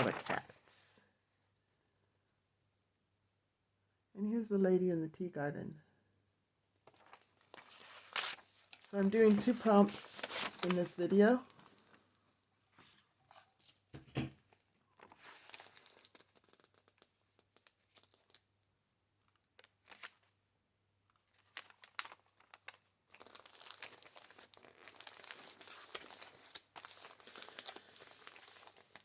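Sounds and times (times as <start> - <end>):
paper rustling and crinkling: 0.0 - 0.8, 6.8 - 18.5, 19.2 - 20.3, 21.1 - 29.0.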